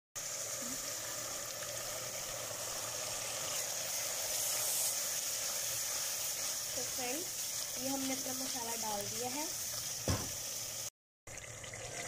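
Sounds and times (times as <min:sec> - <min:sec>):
masala sizzling in hot oil: 0:00.2 - 0:12.0.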